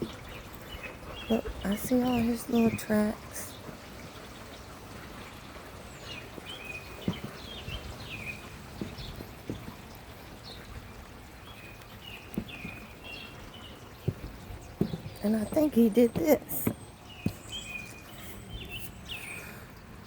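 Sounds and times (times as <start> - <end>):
light rain hiss: 0.0 - 20.0
small birds chirping: 0.0 - 20.0
soft knocks: 6.4 - 10.1, 14.0 - 17.4.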